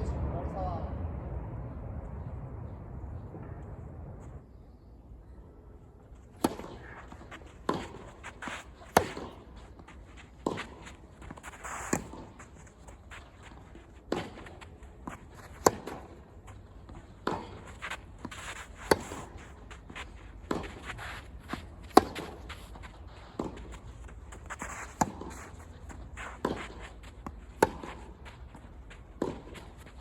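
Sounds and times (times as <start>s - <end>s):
tennis ball struck by rackets: 6.2s - 30.0s.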